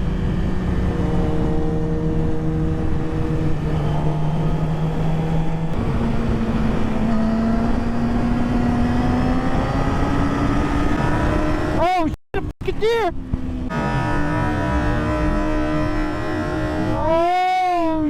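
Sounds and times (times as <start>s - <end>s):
wind noise: 0.0s - 11.8s
motorcycle engine cruising: 0.0s - 12.1s, 13.1s - 17.6s.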